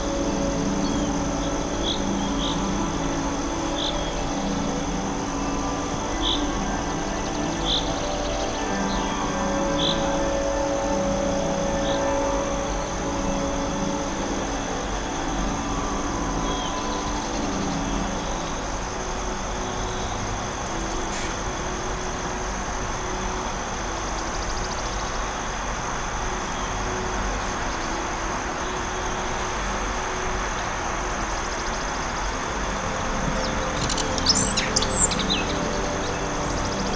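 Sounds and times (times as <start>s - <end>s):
thin constant high tone: 0.0s - 36.9s
steady rushing noise: 12.2s - 36.9s.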